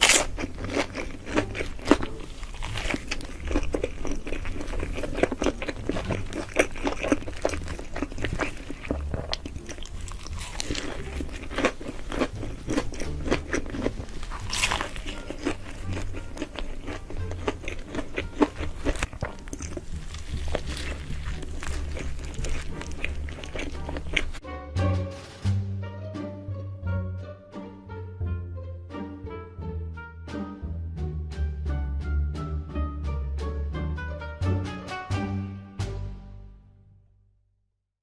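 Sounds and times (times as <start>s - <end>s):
crunchy chewing of food: 0.0s - 24.4s
background music: 0.0s - 37.1s.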